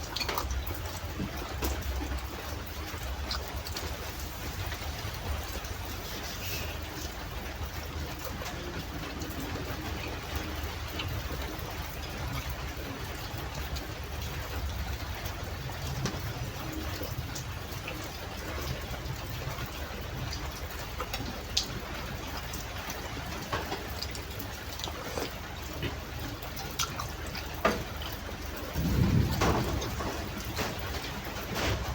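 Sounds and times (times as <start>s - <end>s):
rain hiss: 0.0s - 31.9s.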